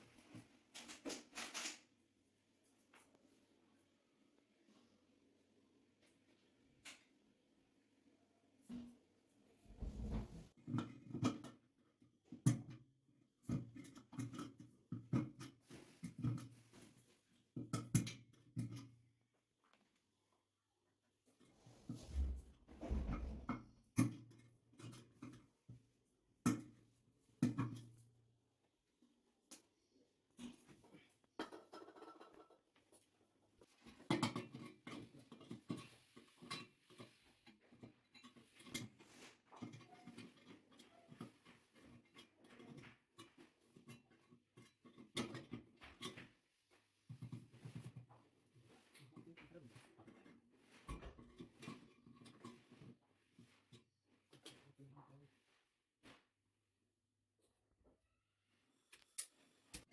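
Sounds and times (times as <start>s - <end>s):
tools scraping and knocking: 9.7s - 11.5s, 21.5s - 25.5s, 47.1s - 54.7s.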